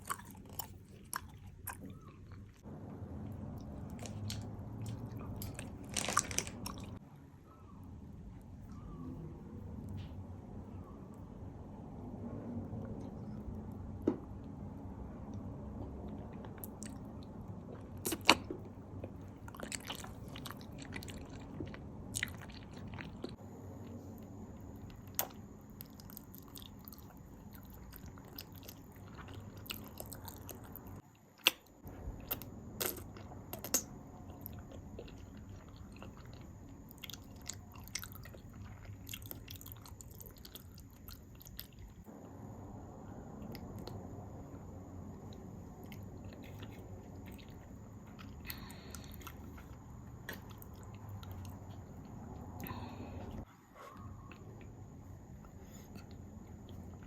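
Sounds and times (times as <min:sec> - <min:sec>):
bites and chewing: 0:00.0 - 0:02.7, 0:03.6 - 0:07.0, 0:15.8 - 0:23.4, 0:24.2 - 0:42.1, 0:45.1 - 0:57.0.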